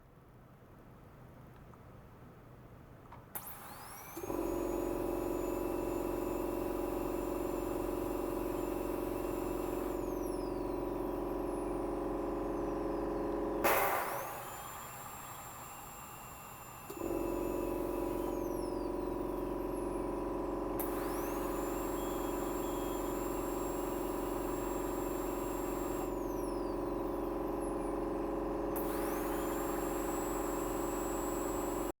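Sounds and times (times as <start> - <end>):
electrical hum with high whine: 0.0 - 32.0
loud click: 13.6 - 14.4.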